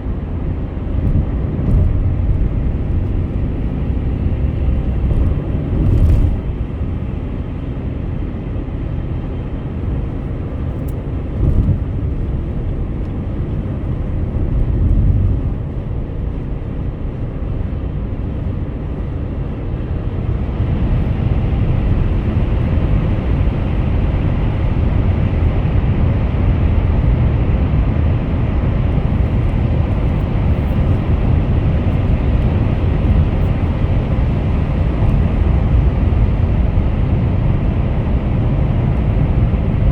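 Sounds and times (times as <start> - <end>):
road and tyre rumble: 0.0 - 39.9.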